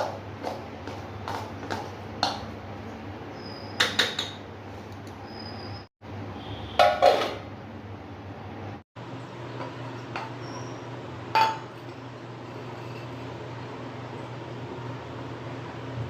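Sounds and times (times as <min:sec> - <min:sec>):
utensils clinking against dishes: 0:09.6 - 0:12.0.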